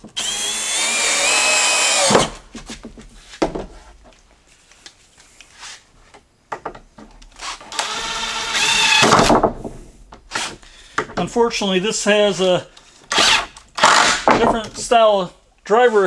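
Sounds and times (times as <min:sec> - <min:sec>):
power screw gun whining: 0:00.0 - 0:02.4, 0:07.4 - 0:09.2, 0:13.1 - 0:14.3.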